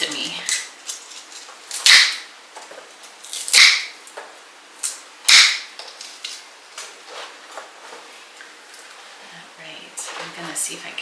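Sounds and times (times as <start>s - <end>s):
tubers snapping apart: 0.1s - 4.2s, 4.8s - 7.0s.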